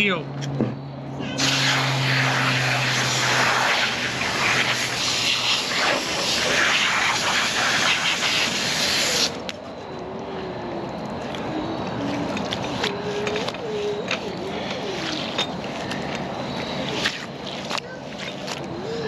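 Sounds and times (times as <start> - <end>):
loud rushing hiss: 1.4 - 9.4.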